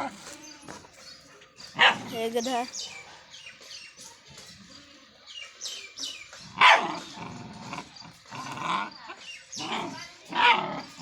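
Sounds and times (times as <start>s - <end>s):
dog barking: 1.8s - 2.1s, 6.6s - 7.1s.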